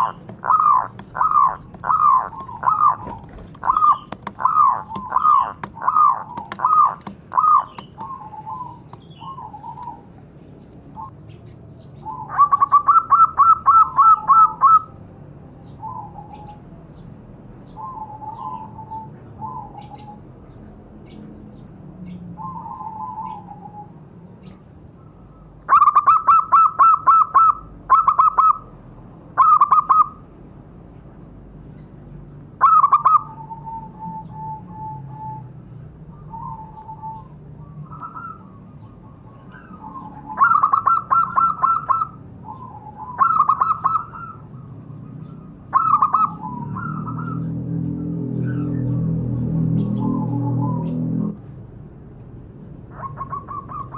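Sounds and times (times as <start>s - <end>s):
doves cooing: 0.0s - 10.2s, 12.0s - 17.0s, 25.0s - 28.7s, 32.6s - 51.4s, 52.9s - 53.9s.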